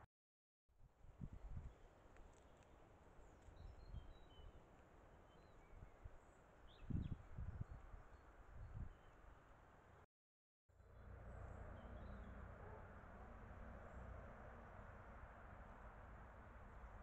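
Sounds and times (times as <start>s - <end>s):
faint high bird chirps: 1.6s - 4.6s, 11.3s - 12.8s.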